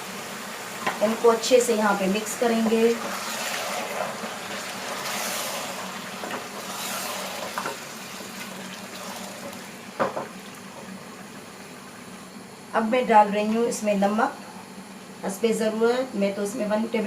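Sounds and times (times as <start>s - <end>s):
wet stirring and sizzling in pot: 0.0s - 12.3s
knocks against pot: 10.0s - 10.3s.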